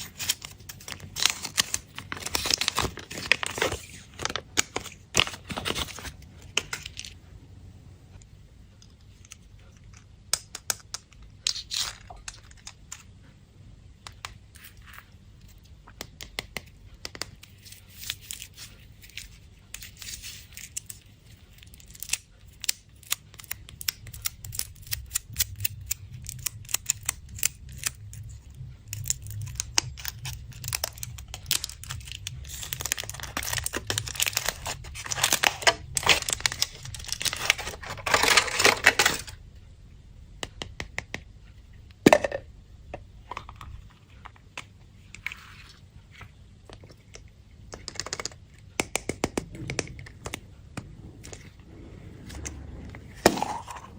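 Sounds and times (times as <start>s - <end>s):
candy wrappers crinkling and tearing: 0.0s - 7.2s, 9.1s - 13.1s, 17.1s - 39.4s.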